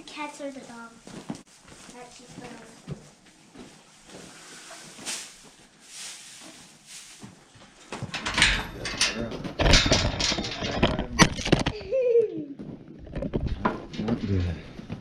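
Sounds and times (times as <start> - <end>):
hooves clattering on floor: 7.2 - 11.8.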